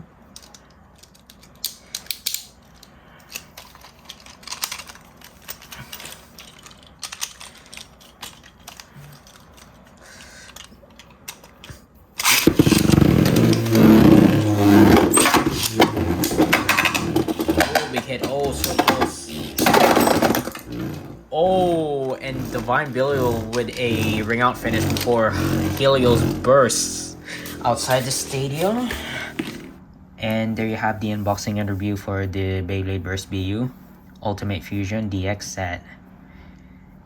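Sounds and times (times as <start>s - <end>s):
clicks of plastic parts: 0.3s - 13.8s
spinning tops whirring and clattering: 12.2s - 29.7s.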